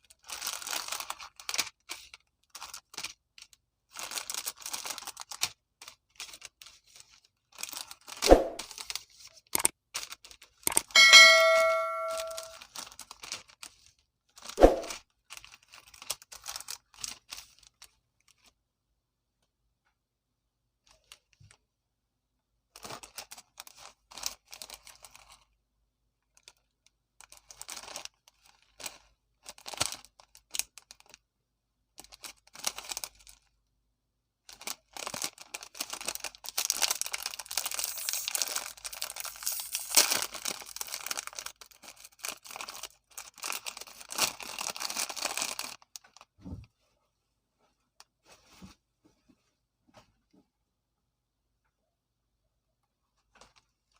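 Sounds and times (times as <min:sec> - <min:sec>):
plastic packaging crinkling: 0:00.1 - 0:08.2, 0:15.2 - 0:18.5, 0:27.2 - 0:31.2, 0:32.0 - 0:33.5, 0:34.5 - 0:46.3
metallic ding: 0:11.0 - 0:12.5.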